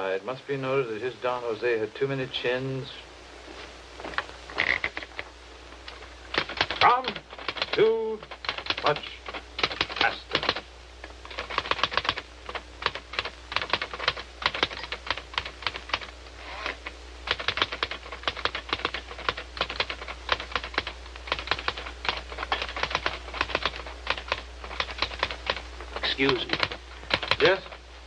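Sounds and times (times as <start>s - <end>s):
manual typewriter keystrokes: 5.9s - 10.6s, 11.2s - 16.1s, 17.3s - 27.8s.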